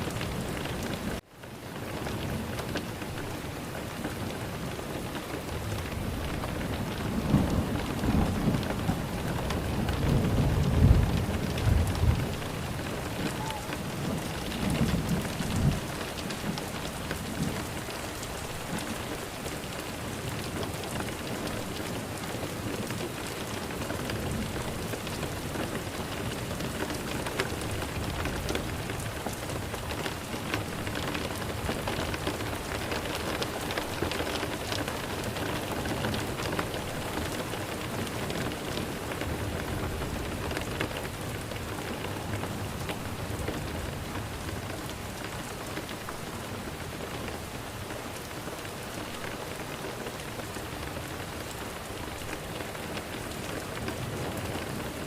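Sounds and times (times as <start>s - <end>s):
steady rain: 0.0s - 55.0s
low rumble of thunder: 5.4s - 32.8s.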